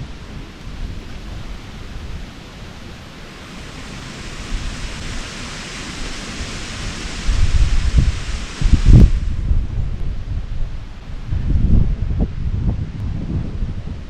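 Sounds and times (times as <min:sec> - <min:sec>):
wind buffeting microphone: 0:00.0 - 0:14.0
wind rushing: 0:03.3 - 0:14.0.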